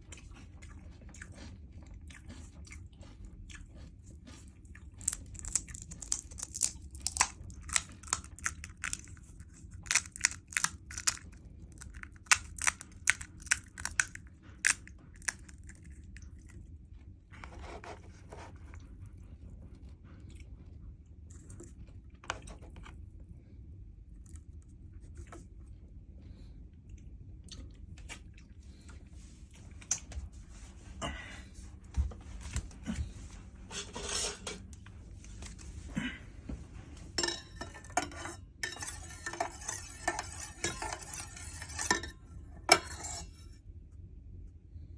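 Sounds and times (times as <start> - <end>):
chewing crunchy fried shells: 0.0 - 22.2.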